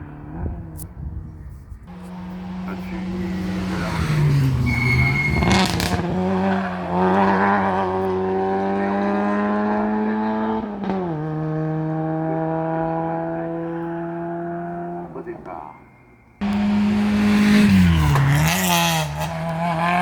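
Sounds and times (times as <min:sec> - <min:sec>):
race car engine pulling hard: 0:01.9 - 0:15.2, 0:16.4 - 0:20.0.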